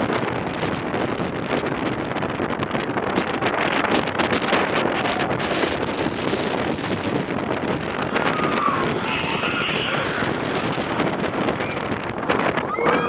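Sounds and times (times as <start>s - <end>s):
roller coaster train on track: 0.0s - 13.0s
wind rushing over microphone: 0.0s - 13.0s
riders screaming: 8.0s - 13.0s.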